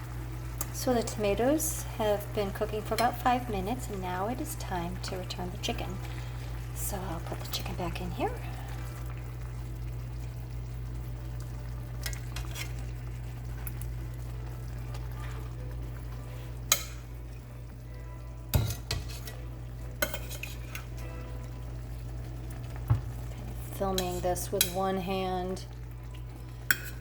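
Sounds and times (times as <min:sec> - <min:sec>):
metal utensil scraping a pan: 0:12.4 - 0:12.8, 0:18.5 - 0:19.4, 0:20.0 - 0:21.0, 0:23.8 - 0:24.8, 0:26.7 - 0:27.0.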